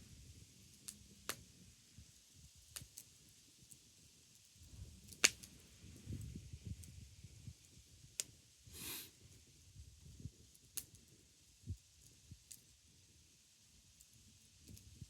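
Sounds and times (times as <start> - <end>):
wood fire crackling and popping: 2.6 - 3.8, 4.4 - 6.9
short hiss: 8.7 - 9.2.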